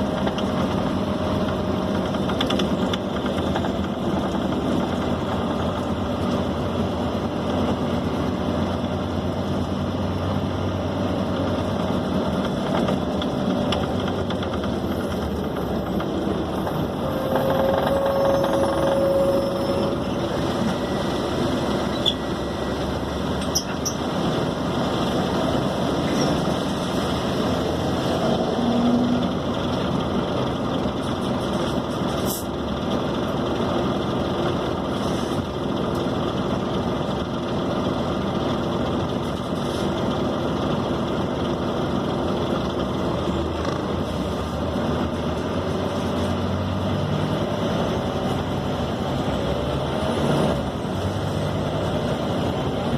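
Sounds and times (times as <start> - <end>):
bus diesel engine running: 0.0 - 52.9
road noise: 0.0 - 52.9
brief whine: 16.6 - 22.9.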